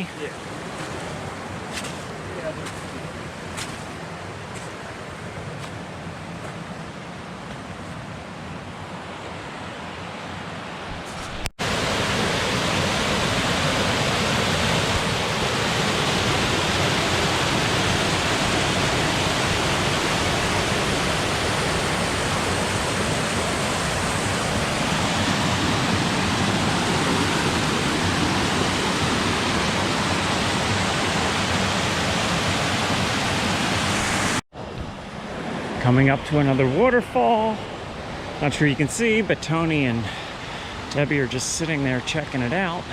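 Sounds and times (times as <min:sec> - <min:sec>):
waterfall rushing: 0:11.6 - 0:34.4.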